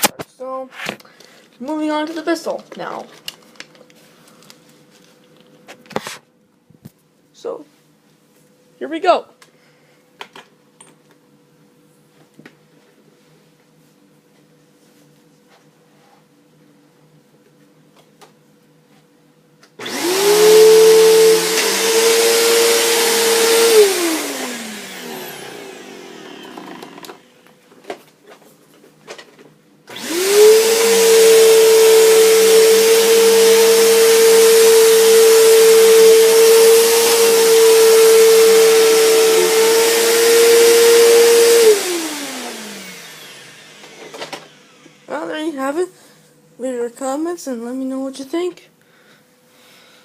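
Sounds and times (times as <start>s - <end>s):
vacuum cleaner motor whining: 19.8s - 28.0s, 29.9s - 45.7s.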